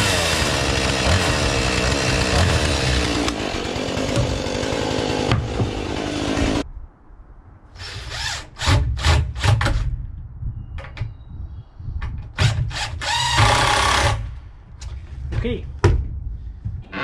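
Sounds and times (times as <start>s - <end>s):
cordless drill driving screws: 12.4s - 14.2s.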